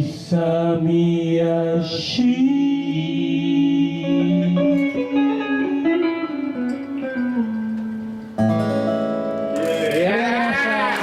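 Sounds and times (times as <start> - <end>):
person singing: 0.0 - 7.0
live band with guitar: 0.0 - 11.0.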